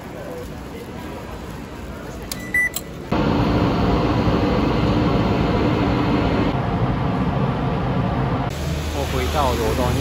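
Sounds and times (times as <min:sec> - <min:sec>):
card reader beep: 0:02.3 - 0:02.9
train loud steady hum: 0:03.1 - 0:10.0.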